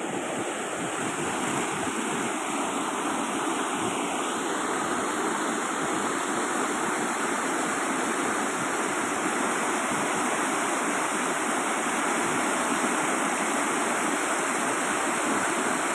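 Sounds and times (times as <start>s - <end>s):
flowing water rushing: 0.0s - 15.9s.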